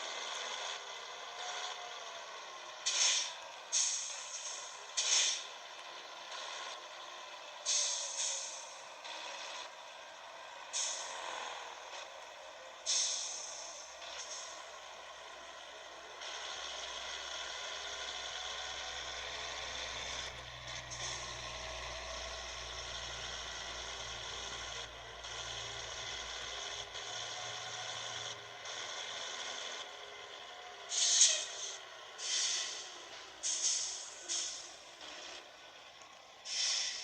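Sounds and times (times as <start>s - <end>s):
truck engine drone: 0.0s - 37.0s
air brake hisses: 2.8s - 5.5s, 7.7s - 8.8s, 10.7s - 11.2s, 12.9s - 14.6s, 30.9s - 34.8s, 36.5s - 37.0s.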